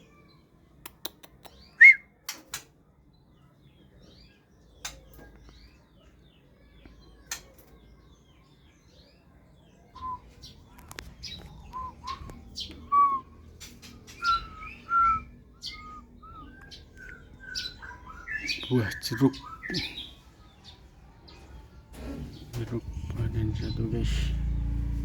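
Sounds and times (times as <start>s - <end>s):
bird whistling and chirping: 1.6s - 2.1s, 10.0s - 10.6s, 11.2s - 20.1s.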